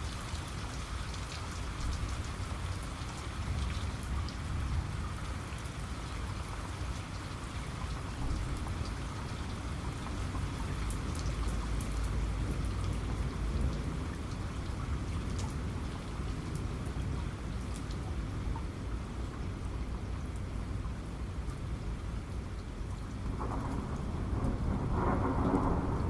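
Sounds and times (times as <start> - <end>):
rain drops ticking: 0.0 - 26.0.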